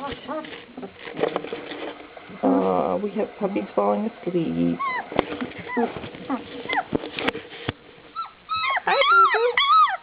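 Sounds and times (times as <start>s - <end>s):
puppies whining: 4.7s - 7.4s, 8.1s - 10.0s.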